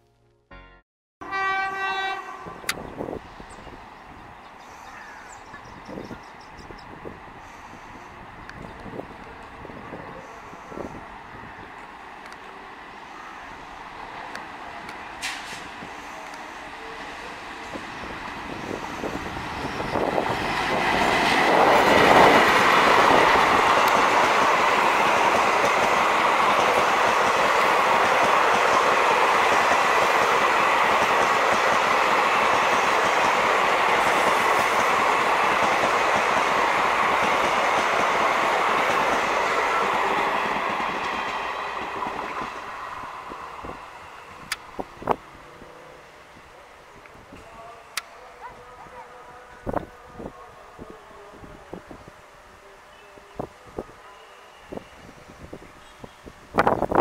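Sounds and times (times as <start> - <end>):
diesel locomotive passing: 1.2 - 57.0
train wheels on rails: 2.6 - 45.8.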